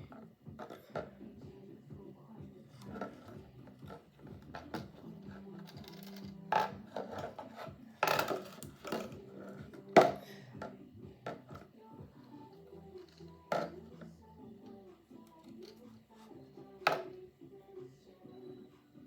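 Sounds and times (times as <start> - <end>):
plastic bottle rustling: 2.8 - 10.3
plastic clicks and knocks: 5.6 - 9.2.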